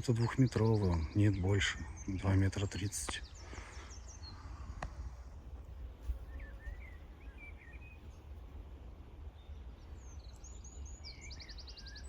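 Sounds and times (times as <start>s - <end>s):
small songbirds chirping: 0.0s - 12.0s.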